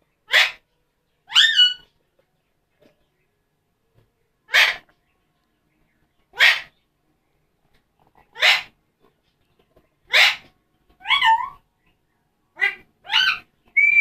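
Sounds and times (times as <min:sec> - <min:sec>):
parrot warbling calls: 0:00.3 - 0:00.6, 0:01.3 - 0:01.8, 0:04.5 - 0:04.8, 0:06.4 - 0:06.7, 0:08.3 - 0:08.7, 0:10.1 - 0:11.6, 0:12.6 - 0:14.0
parrot whistle: 0:13.1 - 0:14.0.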